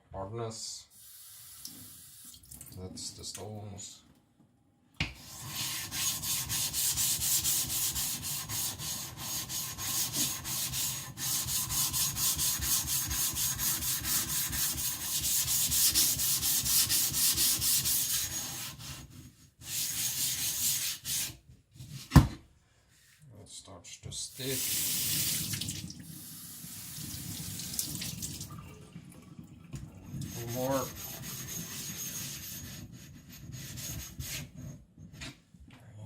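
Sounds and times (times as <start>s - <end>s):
gritty rubbing on whetstone: 5.2s - 21.3s, 30.3s - 35.2s.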